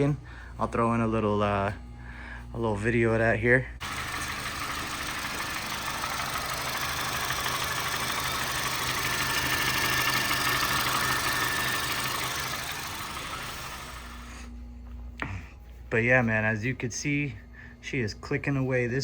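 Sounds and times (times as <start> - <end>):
engine valve clicking: 3.8 - 14.2
car engine idling: 3.8 - 14.4.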